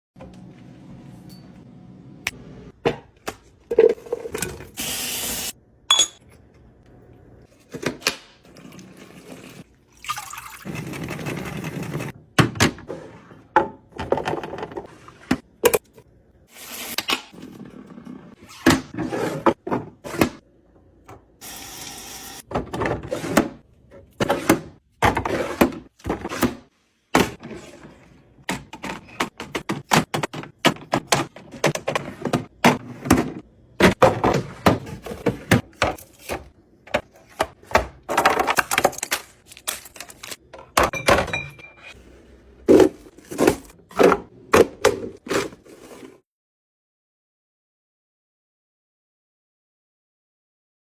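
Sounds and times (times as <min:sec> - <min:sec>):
items set down on shelves: 0:42.7 - 0:46.2.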